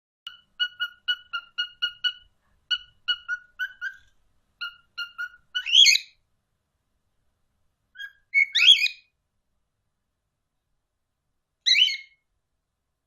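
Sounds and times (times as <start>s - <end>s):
parrot beep-like calls: 0.3s - 6.2s, 8.0s - 9.1s, 11.7s - 12.2s.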